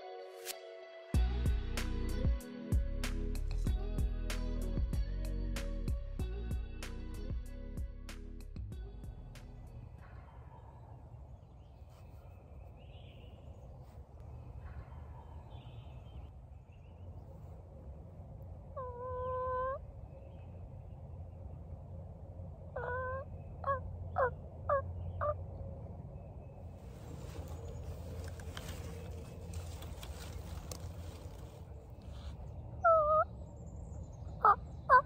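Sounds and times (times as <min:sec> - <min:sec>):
steady low rumble: 0:01.2 - 0:35.0
bird calls: 0:09.9 - 0:17.5, 0:18.8 - 0:21.7, 0:22.8 - 0:25.6, 0:26.2 - 0:35.0.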